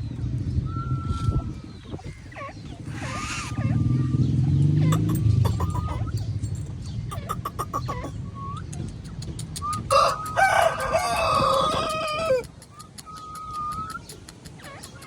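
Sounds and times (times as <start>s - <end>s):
steady whistle: 0.7s - 1.5s
harsh bird call: 2.0s - 6.2s, 7.1s - 8.2s.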